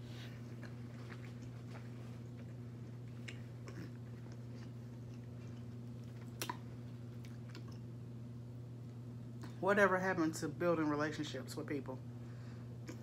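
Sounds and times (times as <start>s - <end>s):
steady low hum: 0.0s - 13.0s
faint chewing and mouth clicks: 0.2s - 7.9s.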